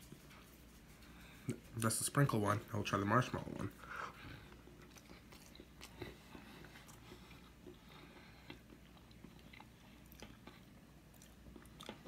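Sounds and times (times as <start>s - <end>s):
soft chewing: 3.3s - 12.0s.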